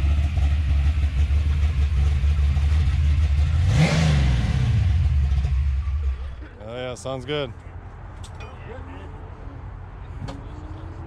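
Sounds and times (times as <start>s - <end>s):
car engine idling and revving: 0.0s - 6.4s.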